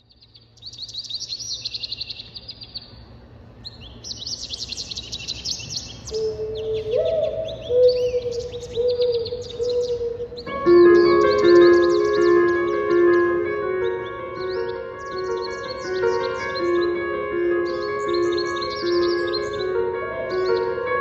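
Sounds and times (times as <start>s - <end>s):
birdsong chirping trills: 0.0s - 21.0s
low held notes: 6.1s - 21.0s
music with chords: 10.4s - 21.0s.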